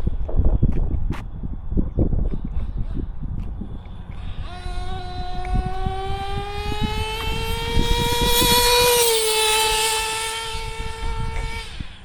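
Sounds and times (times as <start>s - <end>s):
nitro engine high whine: 3.5s - 12.0s.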